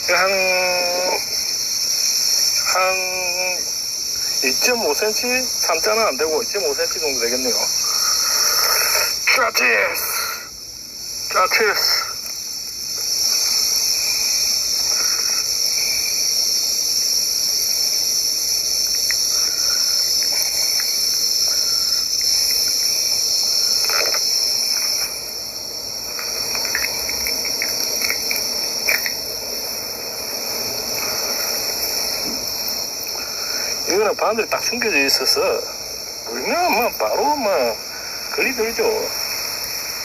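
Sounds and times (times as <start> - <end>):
insects buzzing: 0.0 - 40.0
faint clicks: 26.1 - 29.2.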